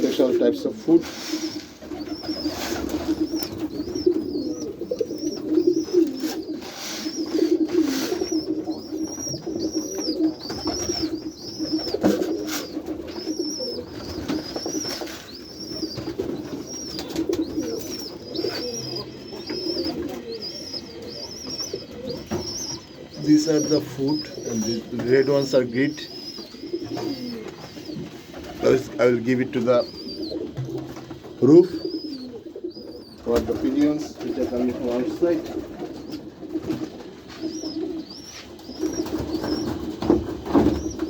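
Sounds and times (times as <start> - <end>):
pigeons cooing: 0.0 - 41.0
thin high chirp: 12.6 - 28.0.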